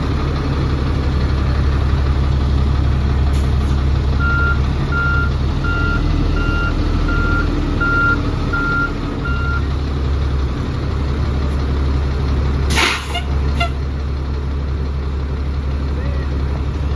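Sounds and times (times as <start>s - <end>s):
diesel truck engine running: 0.0s - 16.9s
reversing beeper: 4.2s - 9.7s.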